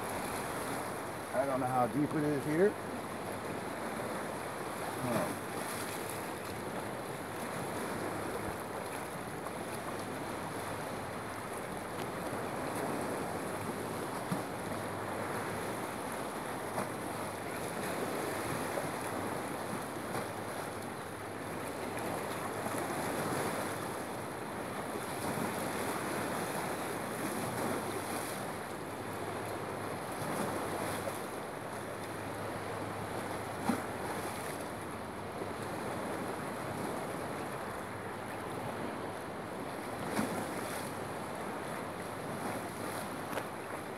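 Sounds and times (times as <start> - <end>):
water washing against a pier: 0.0 - 31.4.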